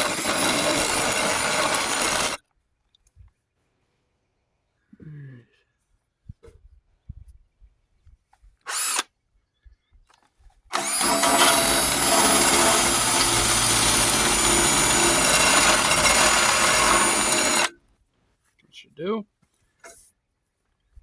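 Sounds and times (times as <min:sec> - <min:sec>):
power drill whining: 0:00.0 - 0:02.4, 0:08.7 - 0:09.0, 0:10.7 - 0:17.7.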